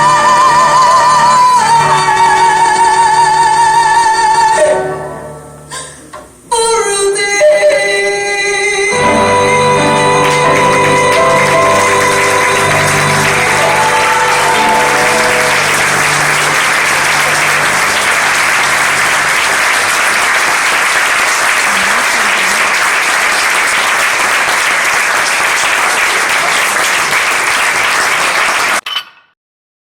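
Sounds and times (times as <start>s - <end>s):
person singing: 0.0s - 5.0s, 6.5s - 18.8s
piano notes: 8.9s - 20.8s
audience applauding: 9.0s - 28.8s.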